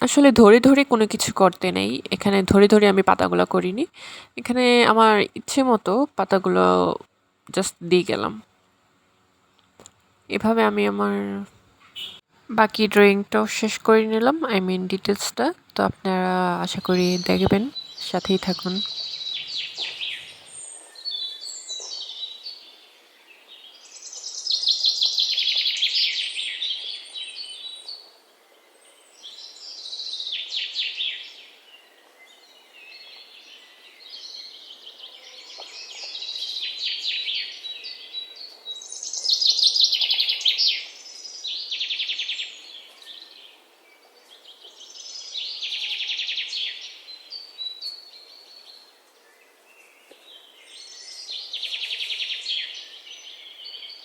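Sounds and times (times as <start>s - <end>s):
bird singing trilled phrases: 12.0s - 28.0s, 28.9s - 54.0s.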